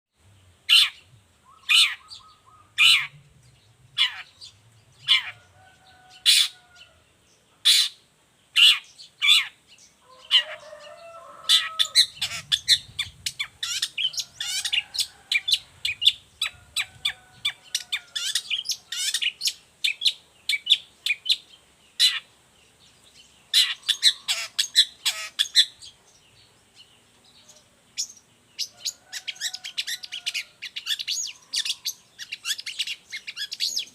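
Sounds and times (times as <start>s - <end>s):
bird singing sharp chattering notes: 11.6s - 16.6s, 23.1s - 26.0s.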